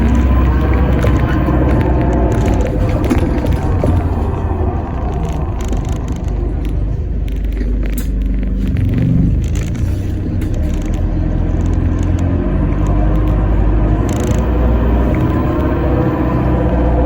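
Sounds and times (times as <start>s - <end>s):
bus drivetrain rumble: 0.0s - 17.0s
low engine note: 0.0s - 17.0s
road noise: 0.0s - 17.0s.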